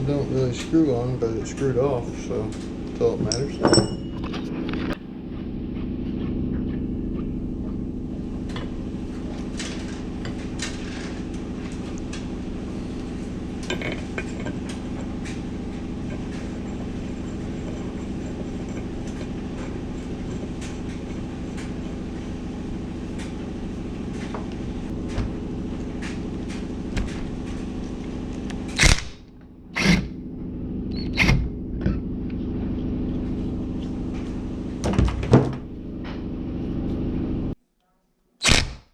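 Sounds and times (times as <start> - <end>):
low mechanical hum: 0.0 - 37.6.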